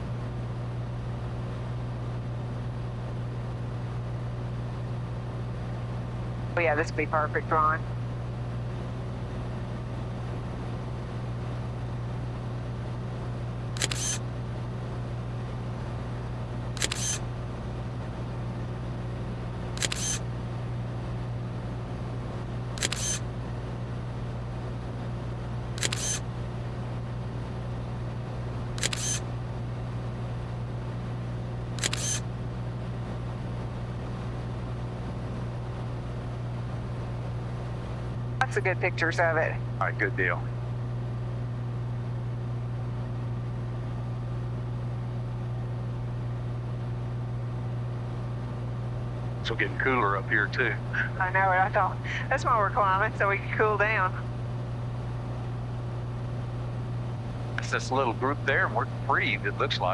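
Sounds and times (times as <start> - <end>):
airplane engine and propeller drone: 0.0 - 59.9
camera shutter clicking: 13.8 - 14.2, 16.7 - 17.3, 19.8 - 20.3, 22.8 - 23.3, 25.8 - 26.3, 28.7 - 29.3, 31.8 - 32.3.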